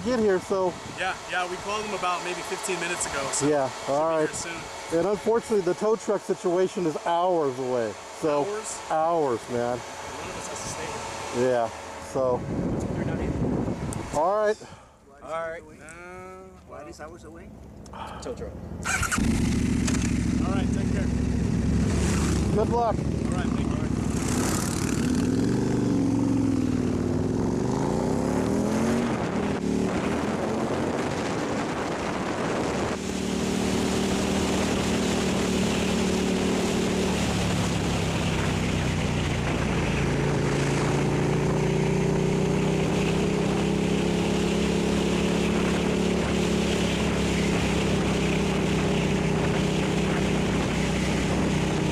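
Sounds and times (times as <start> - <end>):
wind noise: 0.0 - 1.9, 12.2 - 14.8, 26.6 - 42.1, 45.3 - 51.9
motorcycle engine accelerating: 0.0 - 14.4, 18.6 - 51.9.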